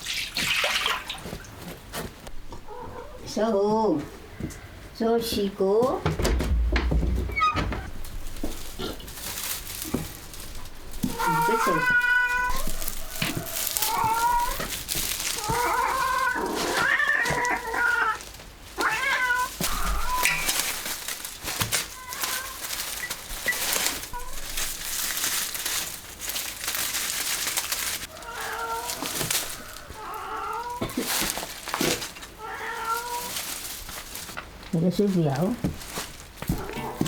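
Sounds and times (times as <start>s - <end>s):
rustling: 0.0s - 37.0s
cat meowing: 11.0s - 14.8s, 15.4s - 18.2s, 18.8s - 20.7s, 21.9s - 23.1s, 28.1s - 31.0s, 32.4s - 33.4s, 36.5s - 37.0s.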